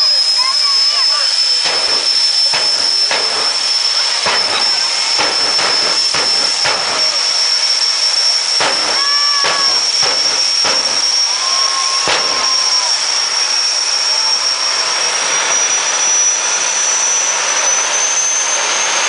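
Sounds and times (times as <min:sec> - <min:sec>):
jet engine roaring hiss: 0:00.0 - 0:19.0
sharp engine cracks: 0:01.6 - 0:07.2, 0:08.6 - 0:12.8.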